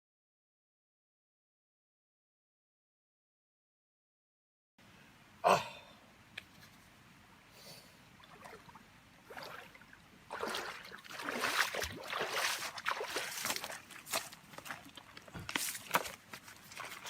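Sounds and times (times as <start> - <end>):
water splashing and sloshing: 8.1 - 17.0.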